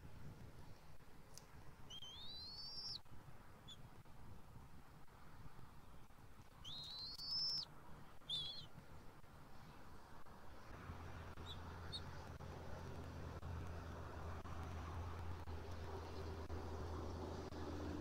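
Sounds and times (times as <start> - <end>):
bird whistled calls: 1.9 - 3.0, 6.6 - 7.7, 8.3 - 8.7.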